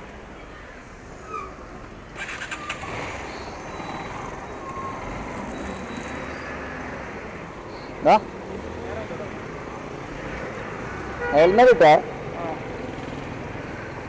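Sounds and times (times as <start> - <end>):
road traffic engine noise: 0.0 - 14.0.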